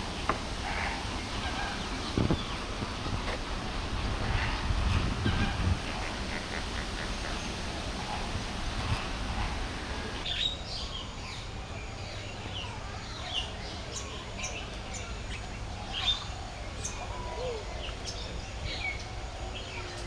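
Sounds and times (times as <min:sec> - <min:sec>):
birds chirping: 0:00.0 - 0:11.4
steady background noise: 0:00.0 - 0:20.0.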